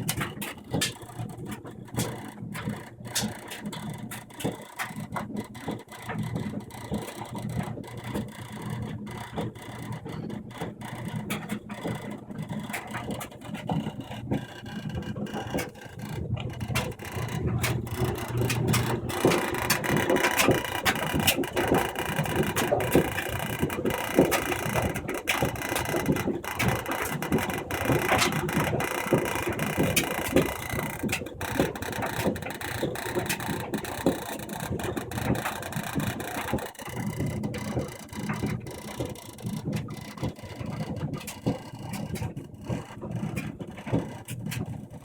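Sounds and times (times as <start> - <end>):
clothes dryer humming: 11.5 - 40.4.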